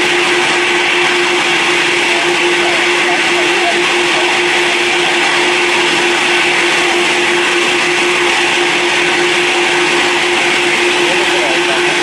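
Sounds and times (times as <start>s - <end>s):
jet engines whining: 0.0s - 12.0s.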